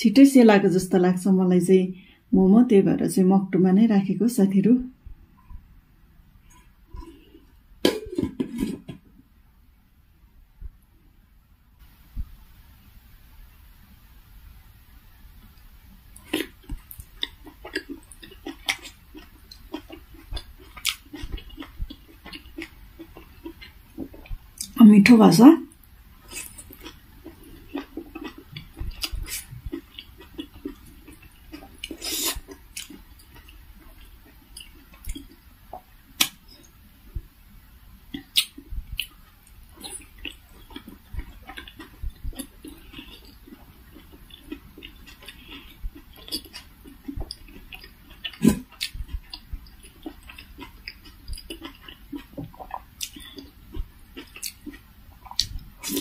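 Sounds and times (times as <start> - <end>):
person chewing food: 6.4 - 9.0, 16.1 - 24.8, 25.7 - 37.3, 38.1 - 56.0
mouth clicks and smacks: 38.1 - 43.4.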